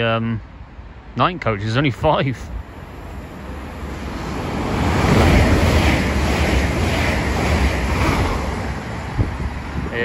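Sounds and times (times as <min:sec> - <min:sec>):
train passing at speed: 0:00.4 - 0:10.0.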